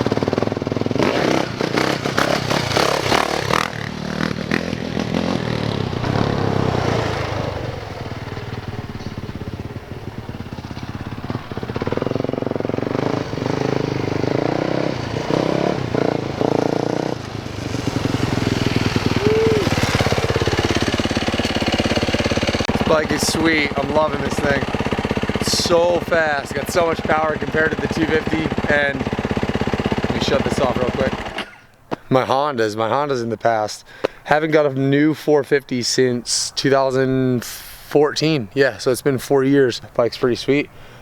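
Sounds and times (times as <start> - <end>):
dirt bike engine revving: 0.0 - 31.7.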